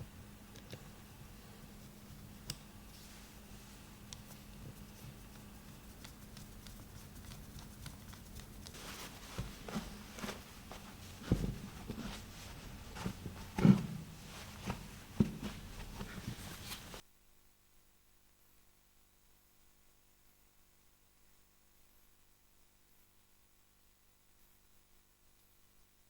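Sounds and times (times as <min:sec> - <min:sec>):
objects being handled knocking: 0:08.7 - 0:17.0.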